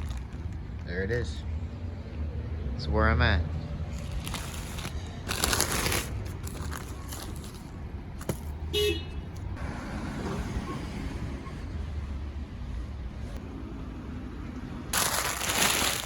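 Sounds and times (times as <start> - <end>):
car engines rumbling: 0.0 - 16.0
car horn toot: 8.7 - 9.2.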